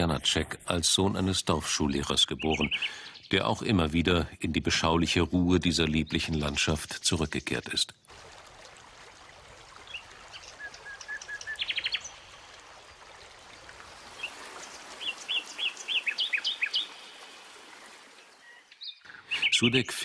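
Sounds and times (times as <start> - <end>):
songbirds calling: 0.0 - 4.0, 9.8 - 20.0
small stream rushing: 8.0 - 19.0.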